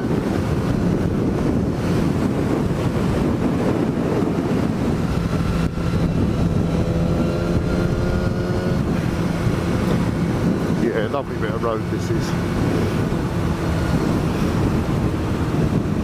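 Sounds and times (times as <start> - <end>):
motorcycle engine running: 0.0 - 16.0
wind rush on microphone: 0.0 - 16.0.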